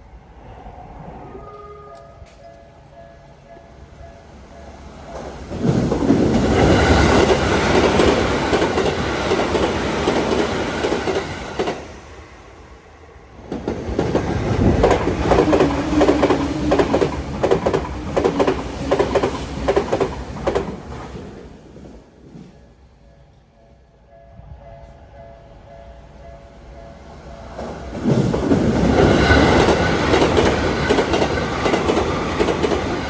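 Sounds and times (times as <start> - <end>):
electric trains passing: 0.0 - 33.0
wheels clacking over rail joints: 5.0 - 11.8, 13.4 - 21.1, 27.5 - 33.0.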